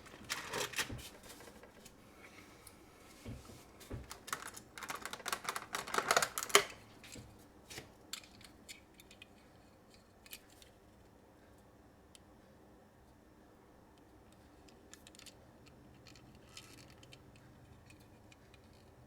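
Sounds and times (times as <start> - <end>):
plastic toy cars clicking: 4.1 - 6.8, 14.6 - 19.0.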